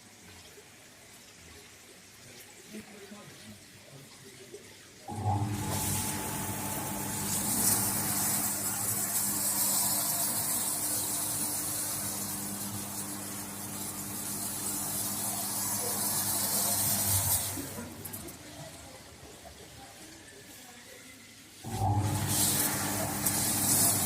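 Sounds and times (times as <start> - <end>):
shower spray hissing: 5.1 - 19.0, 20.8 - 24.0.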